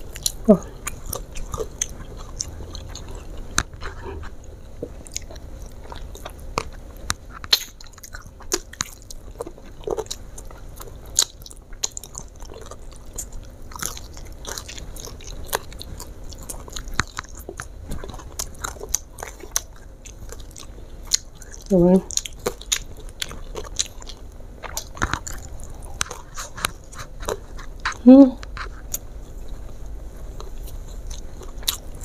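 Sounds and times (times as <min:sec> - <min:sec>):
chewing crispy fried chicken: 0:00.0 - 0:32.0.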